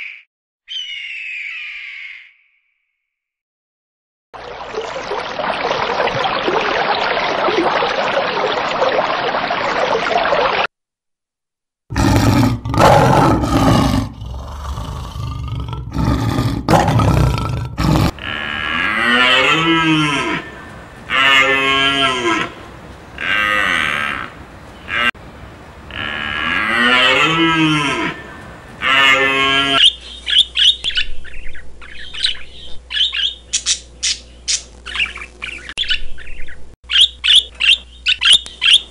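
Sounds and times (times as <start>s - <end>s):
rapid bird chirping: 29.8s - 38.9s.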